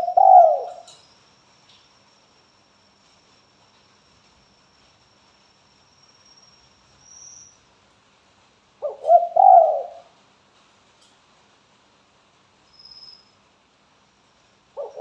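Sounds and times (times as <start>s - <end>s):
dove cooing: 0.0s - 1.0s, 8.8s - 10.1s, 14.8s - 15.0s.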